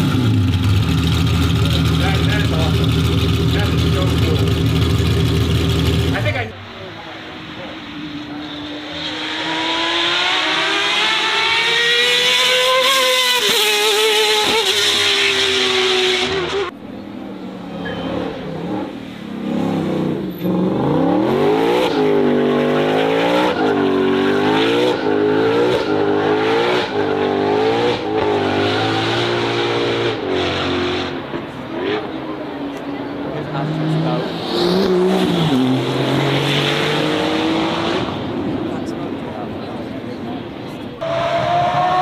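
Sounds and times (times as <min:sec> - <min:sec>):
racing car engine climbing: 0:00.0 - 0:42.0
racing car engine revving: 0:07.3 - 0:16.8, 0:17.6 - 0:39.7.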